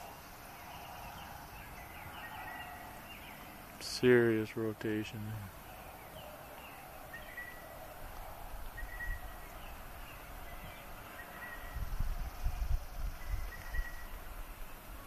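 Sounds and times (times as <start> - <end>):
birds chirping: 0.0 - 15.0
wind buffeting microphone: 5.5 - 15.0.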